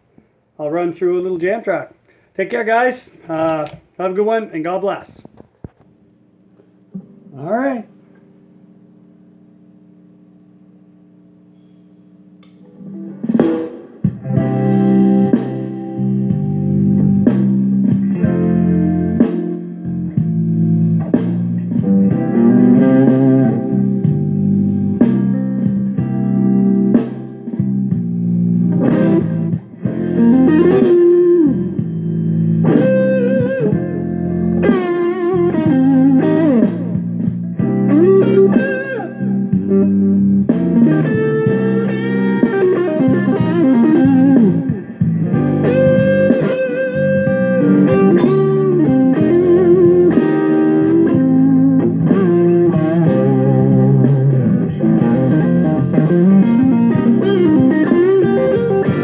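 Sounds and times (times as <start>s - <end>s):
electric guitar lead lines: 1.1s - 59.0s
backing jam track: 12.6s - 59.0s.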